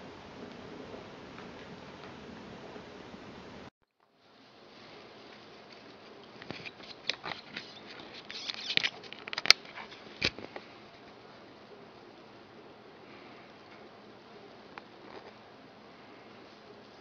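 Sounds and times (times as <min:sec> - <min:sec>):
steady hiss: 0:00.0 - 0:17.0
rustling in wood shavings: 0:04.2 - 0:12.0.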